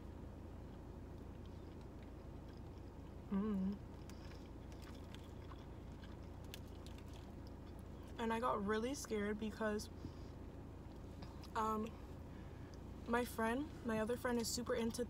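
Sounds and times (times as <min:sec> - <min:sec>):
steady low hum: 0:00.0 - 0:15.0
person chewing: 0:00.7 - 0:08.1
short hummed voice: 0:03.2 - 0:03.9.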